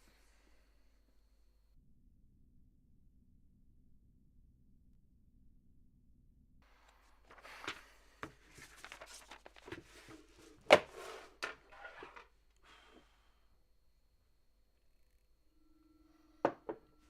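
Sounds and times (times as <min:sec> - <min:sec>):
rustling: 0:06.7 - 0:12.9.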